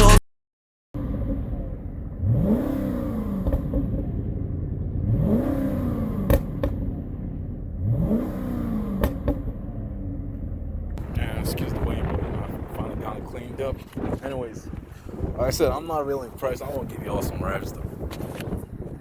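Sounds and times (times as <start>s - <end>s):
car engine idling and revving: 1.0s - 15.4s
exhaust pops: 1.0s - 15.4s, 16.7s - 19.0s.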